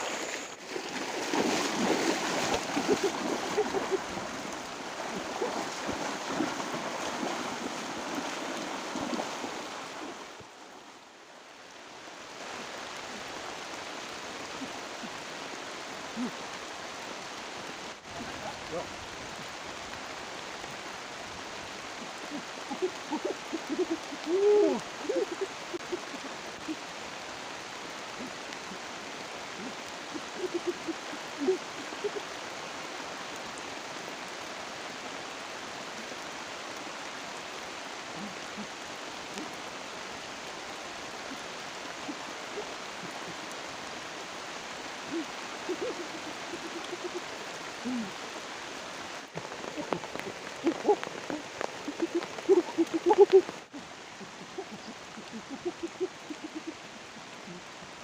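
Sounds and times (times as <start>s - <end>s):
water hissing: 0.0s - 10.3s.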